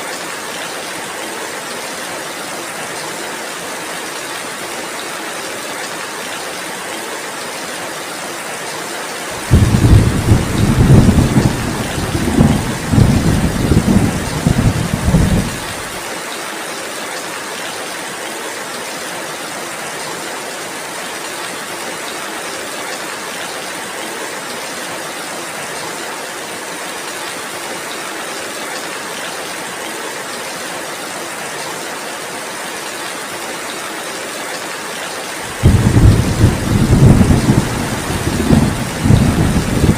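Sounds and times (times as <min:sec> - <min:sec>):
heavy rain hissing: 0:09.2 - 0:16.1, 0:34.6 - 0:39.9
thunder rumbling: 0:09.4 - 0:15.9, 0:35.5 - 0:39.9.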